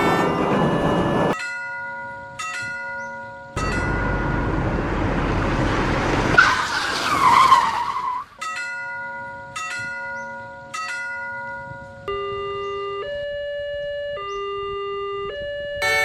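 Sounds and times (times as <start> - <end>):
train rushing past: 0.0 - 1.4, 3.6 - 8.3
crossing bell ringing: 0.0 - 5.1, 8.4 - 13.3, 15.8 - 16.0.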